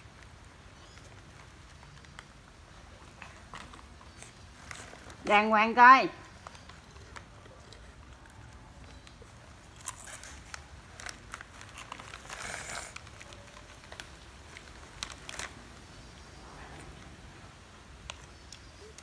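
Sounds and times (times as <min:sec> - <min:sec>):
plastic snack packet crinkling: 0:00.0 - 0:05.2, 0:06.2 - 0:16.2.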